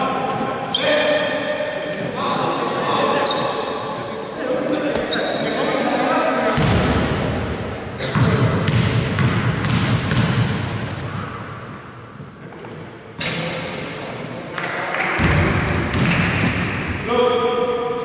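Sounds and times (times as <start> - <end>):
basketball court noise: 6.5 - 17.1
basketball bouncing in a hall: 6.6 - 11.5, 14.6 - 17.0.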